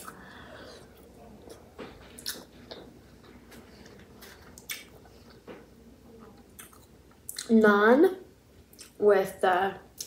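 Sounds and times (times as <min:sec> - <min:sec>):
person chewing food: 0:00.0 - 0:07.5.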